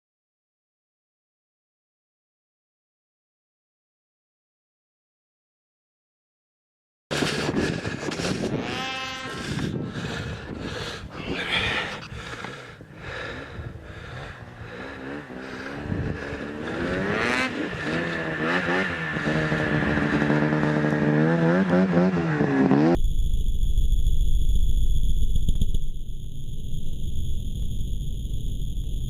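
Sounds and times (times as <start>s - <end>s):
wind buffeting microphone: 7.1s - 21.1s
snowmobile engine running: 7.1s - 23.0s
steady electronic tones: 22.9s - 29.0s.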